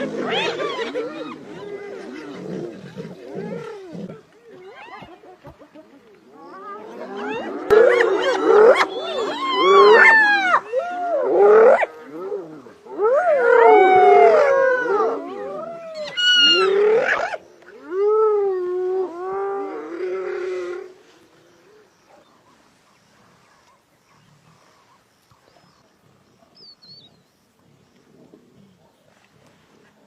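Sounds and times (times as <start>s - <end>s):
wild animals yelping cries: 6.8s - 18.4s.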